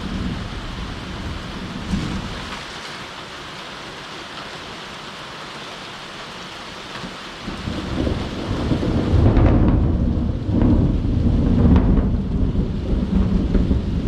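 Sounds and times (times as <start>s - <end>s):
thunder rumbling: 0.0s - 2.7s, 7.4s - 14.0s
steady rain falling: 0.0s - 14.0s.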